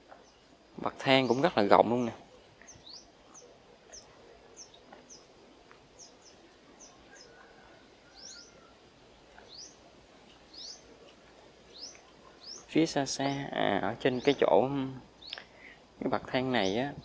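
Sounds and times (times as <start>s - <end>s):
small birds chirping: 0.0s - 17.0s
distant rooster crowing: 6.8s - 9.0s.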